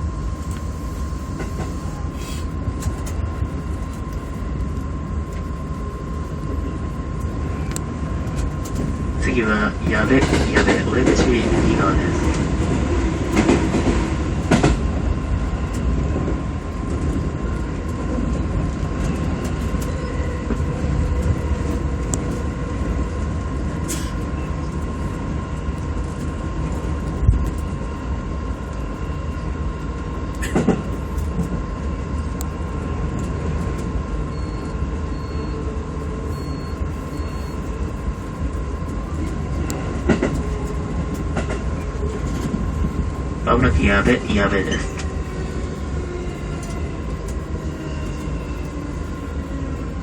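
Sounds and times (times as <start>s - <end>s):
train hum: 0.0s - 50.0s
train wheels rumbling on rail: 0.0s - 50.0s
short high beeps: 34.3s - 35.6s, 36.2s - 37.8s.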